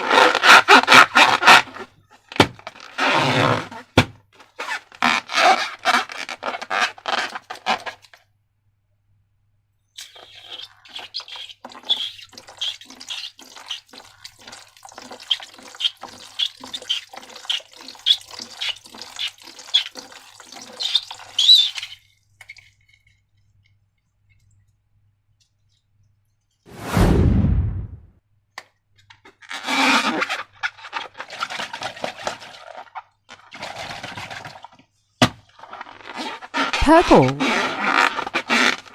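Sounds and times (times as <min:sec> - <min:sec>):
slime squeaks: 0:10.0 - 0:14.2, 0:20.8 - 0:22.0, 0:35.8 - 0:38.9.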